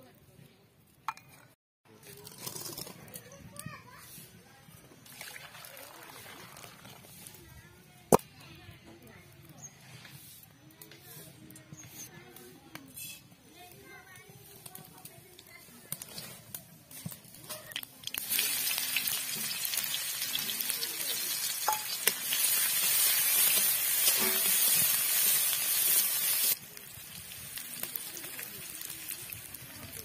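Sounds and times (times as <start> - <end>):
food sizzling in hot oil: 17.4 - 30.0
metal spatula stirring: 21.7 - 24.8.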